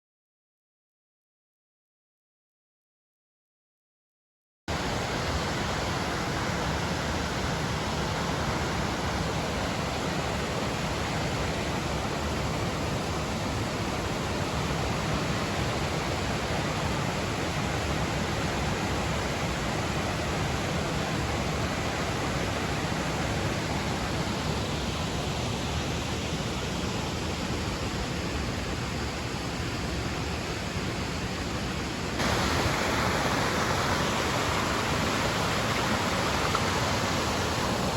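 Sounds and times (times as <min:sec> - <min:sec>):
waterfall pouring: 0:32.2 - 0:37.9.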